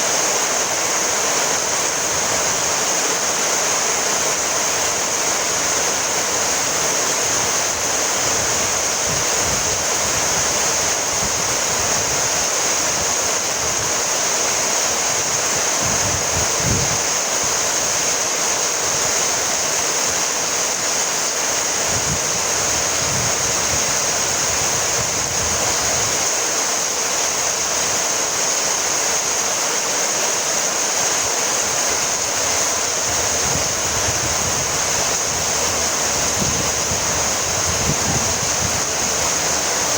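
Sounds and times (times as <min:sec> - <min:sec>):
steady rainfall: 0:00.0 - 0:39.9
low rumbles: 0:32.9 - 0:39.9.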